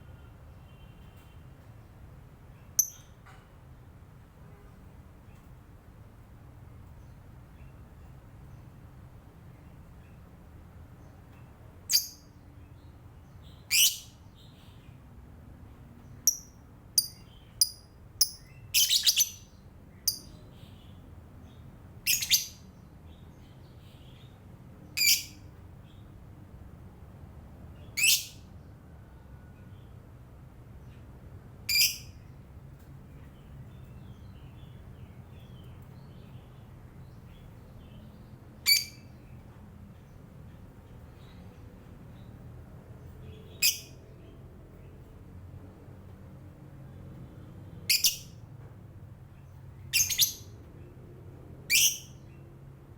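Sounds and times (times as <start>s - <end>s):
lovebird chirping: 2.6s - 3.2s, 11.9s - 12.3s, 13.4s - 14.8s, 16.2s - 21.0s, 22.0s - 22.7s, 25.0s - 25.4s, 27.9s - 28.4s, 31.7s - 32.2s, 38.6s - 39.1s, 43.3s - 44.0s, 47.9s - 48.3s, 49.9s - 50.6s, 51.7s - 52.2s.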